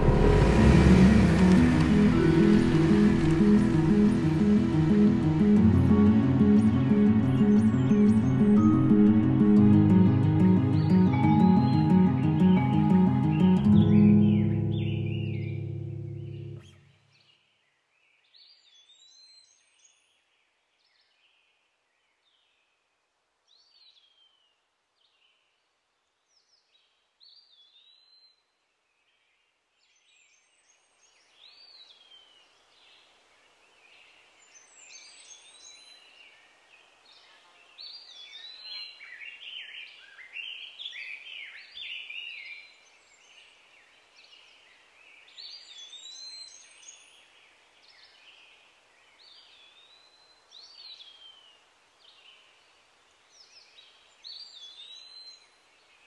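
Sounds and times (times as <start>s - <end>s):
faint outdoor ambience: 0.0s - 16.9s.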